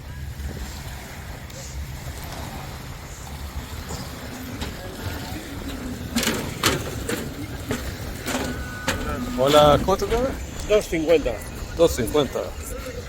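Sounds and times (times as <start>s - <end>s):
faint voices: 0.0s - 13.0s
wind rumble on microphone: 0.0s - 13.0s.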